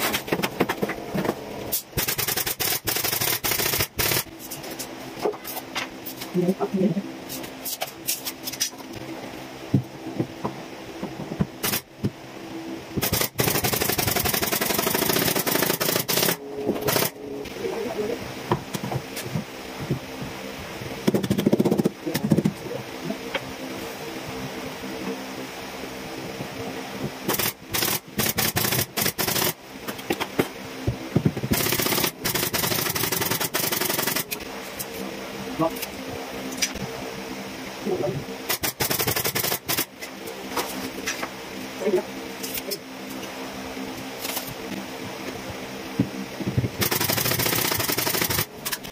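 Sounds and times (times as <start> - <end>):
power tool rattling: 31.5 - 34.4, 46.8 - 48.9.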